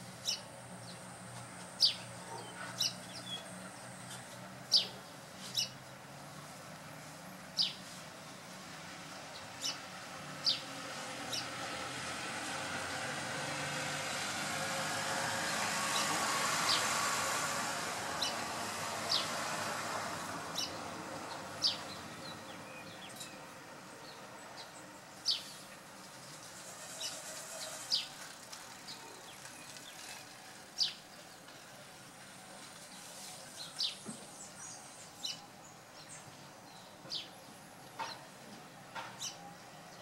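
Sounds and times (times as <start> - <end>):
road traffic hiss: 0.0 - 40.0.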